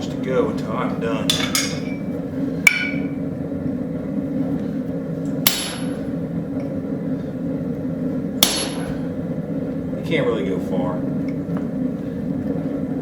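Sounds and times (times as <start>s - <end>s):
low hum: 0.0s - 13.0s
hammer striking metal punch: 2.7s - 3.1s, 5.4s - 6.0s, 8.4s - 9.0s.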